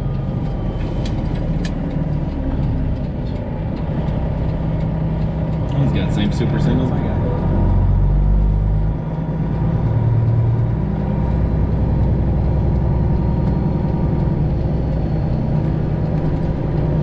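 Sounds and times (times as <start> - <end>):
truck diesel engine humming: 0.0 - 17.0.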